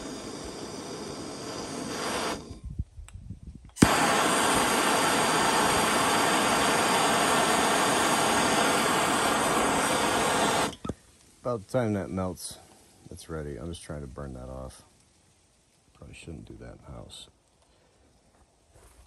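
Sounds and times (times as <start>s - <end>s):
torch burning with loud hiss: 0.0s - 2.8s, 3.7s - 12.9s
propane torch lighting pop: 0.0s - 11.0s
faint hiss: 0.0s - 19.0s.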